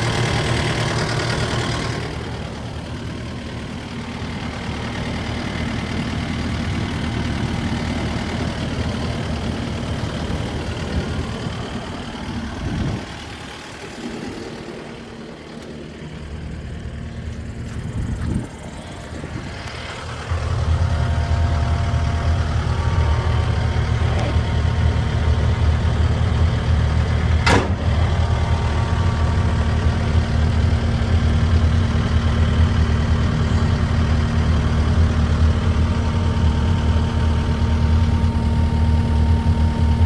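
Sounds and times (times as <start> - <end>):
diesel engine running: 0.0 - 40.0
sharp knock: 27.4 - 27.9.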